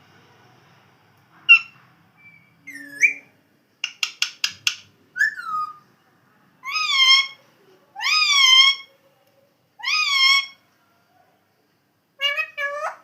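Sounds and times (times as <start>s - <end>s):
parrot calling and whistling: 1.5s - 5.8s, 9.8s - 10.6s
parrot clicking chirps: 3.8s - 4.9s.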